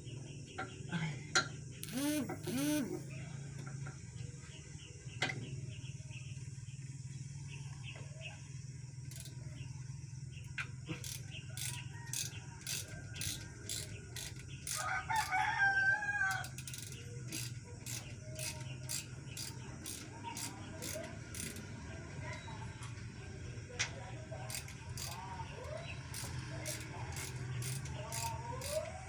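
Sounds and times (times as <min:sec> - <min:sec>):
steady low hum: 0:01.7 - 0:03.4
rooster crowing: 0:14.7 - 0:16.5.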